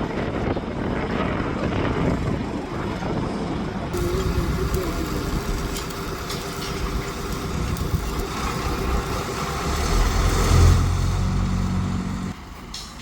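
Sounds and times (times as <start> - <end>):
road traffic noise: 2.6 - 13.0
vehicle engine running: 4.0 - 12.6.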